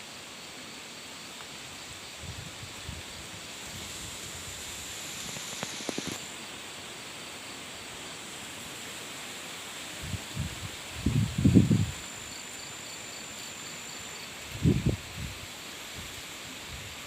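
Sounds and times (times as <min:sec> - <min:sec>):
background hiss: 0:00.0 - 0:17.0
sharp clicks: 0:05.2 - 0:06.2.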